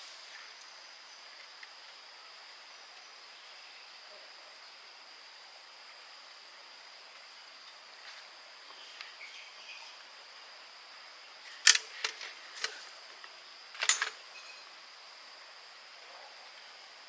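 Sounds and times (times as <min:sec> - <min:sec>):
faint high hiss: 0:00.0 - 0:17.0.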